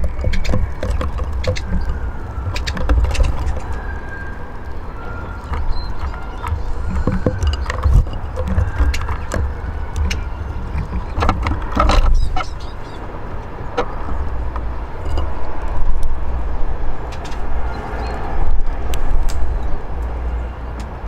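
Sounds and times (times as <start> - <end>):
faint high bird chirping: 0.0 - 13.1, 17.6 - 18.3
low outdoor rumble: 0.0 - 21.0.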